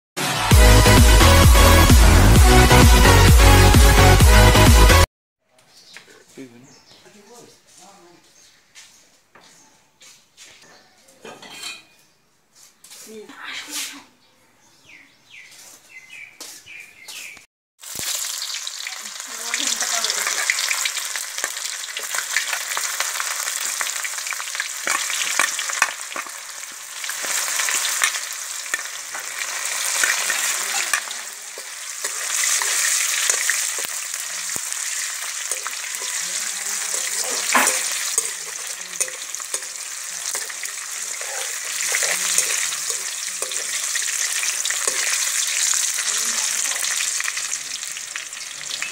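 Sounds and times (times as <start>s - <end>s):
food sizzling in hot oil: 17.8s - 48.9s
metal spatula stirring: 27.0s - 46.2s.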